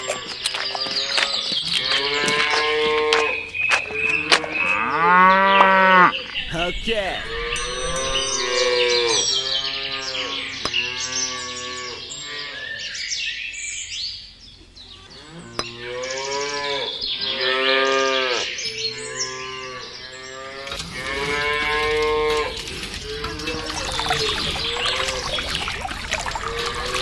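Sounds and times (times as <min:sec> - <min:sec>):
cattle mooing: 0:26.2 - 0:27.0.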